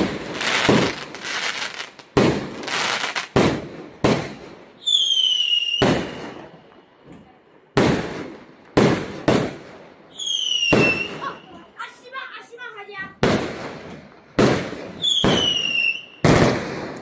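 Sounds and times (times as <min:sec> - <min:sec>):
whistling firework: 0:00.0 - 0:06.9, 0:10.1 - 0:11.4, 0:14.5 - 0:17.0.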